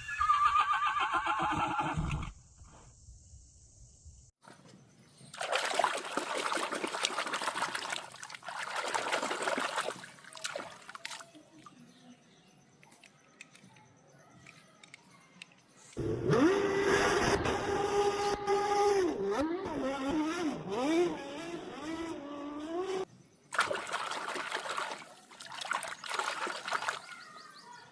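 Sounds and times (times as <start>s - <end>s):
water splashing: 5.4s - 11.8s, 23.5s - 27.6s.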